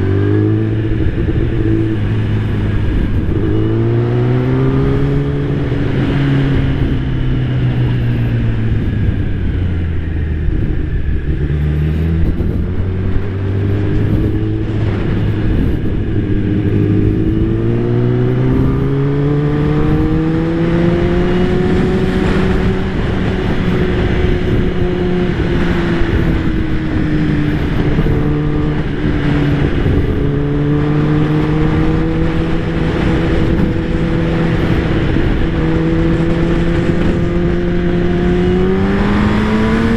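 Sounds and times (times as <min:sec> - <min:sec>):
motorcycle engine revving: 0:00.0 - 0:39.9
wind noise: 0:00.0 - 0:39.9.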